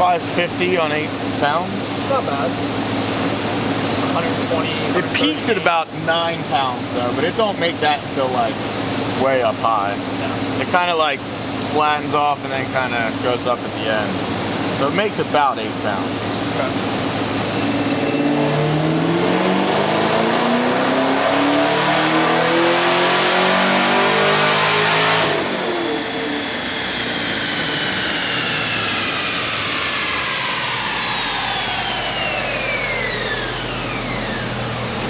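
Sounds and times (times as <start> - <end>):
engine revving at full throttle: 0.0 - 35.0
supercharger whine: 0.0 - 35.0.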